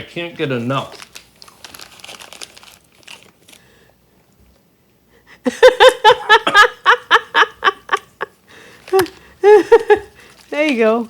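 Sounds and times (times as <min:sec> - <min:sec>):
loud rhythmic laughter: 0:05.5 - 0:08.3.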